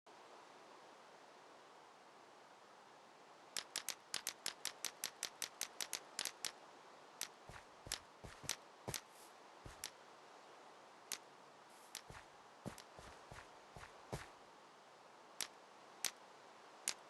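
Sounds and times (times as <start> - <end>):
faint steady hiss: 0.1 - 17.0
sharp clicks: 3.6 - 6.6, 7.2 - 9.1, 9.7 - 10.0, 11.9 - 14.3.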